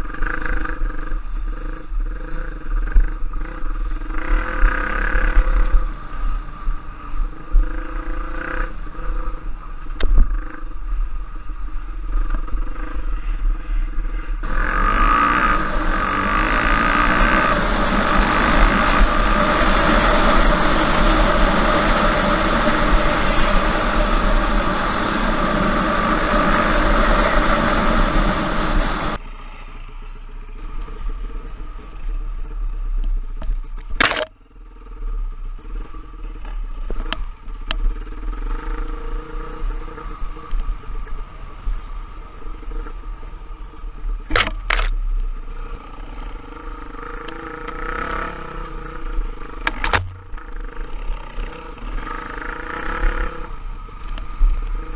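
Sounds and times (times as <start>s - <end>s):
motorcycle engine running hard: 0.0s - 29.2s, 29.9s - 54.9s
quieter engine sound: 0.0s - 54.9s.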